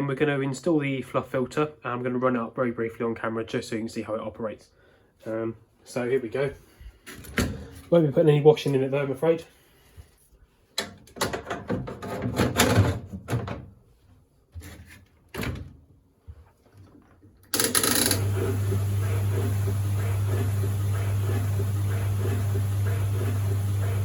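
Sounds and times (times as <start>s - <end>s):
clicks and knocks of handling: 10.8s - 13.7s
tumble dryer humming: 17.6s - 24.0s.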